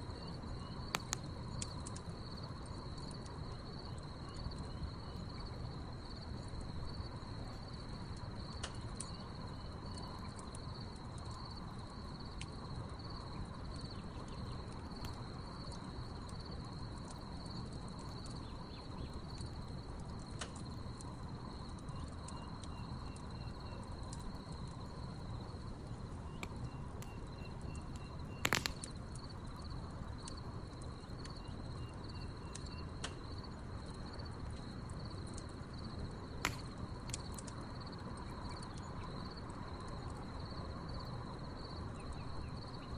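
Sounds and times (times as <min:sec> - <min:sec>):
crickets trilling: 0:00.1 - 0:42.9
wood fire crackling: 0:00.5 - 0:03.4, 0:13.5 - 0:38.2.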